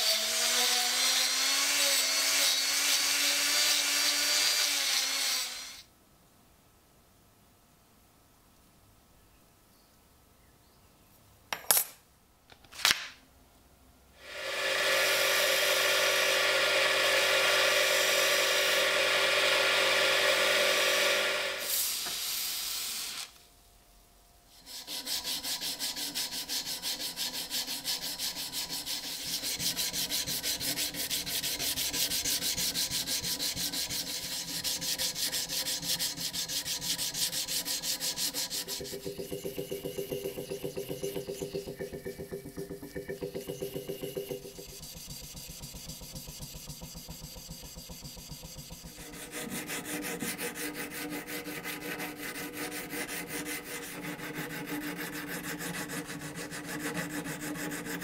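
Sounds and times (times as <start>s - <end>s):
small power tool running: 0.0s - 5.9s, 14.2s - 23.4s, 29.5s - 50.2s
abrasive rubbing: 24.6s - 54.6s.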